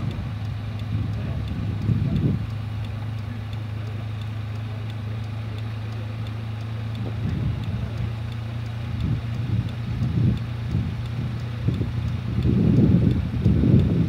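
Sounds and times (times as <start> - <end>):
faint voices: 0.0 - 9.7
car engine running from inside: 0.0 - 14.0.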